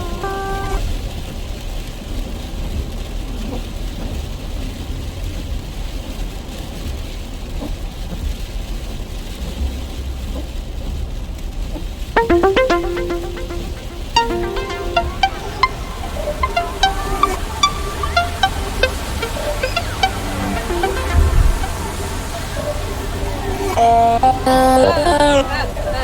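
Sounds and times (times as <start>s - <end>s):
background music: 12.2s - 26.0s.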